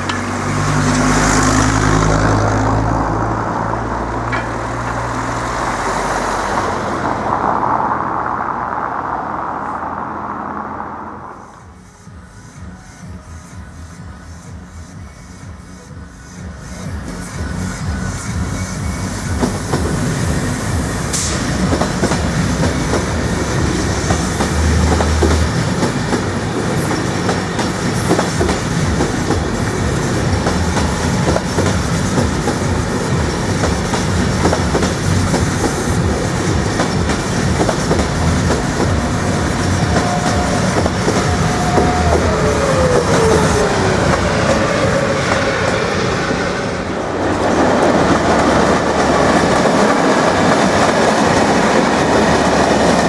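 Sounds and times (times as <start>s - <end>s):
steady tone sliding down in pitch: 0.0s - 11.8s, 34.4s - 53.0s
train wheels clattering over rails: 0.0s - 53.0s.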